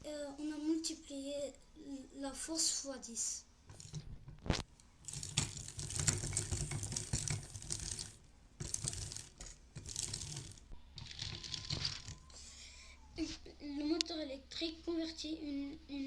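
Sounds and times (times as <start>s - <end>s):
toy generator gears clicking: 5.1s - 12.4s.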